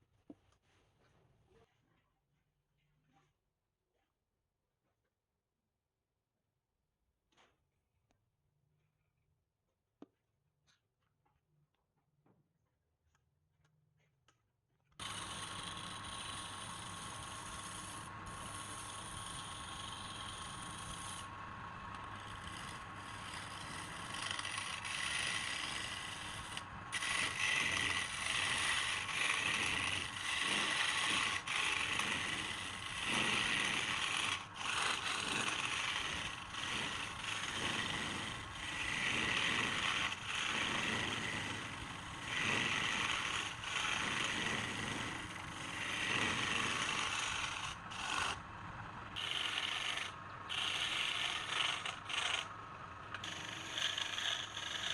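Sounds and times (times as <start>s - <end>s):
tool scraping wood on lathe: 15.0s - 54.9s.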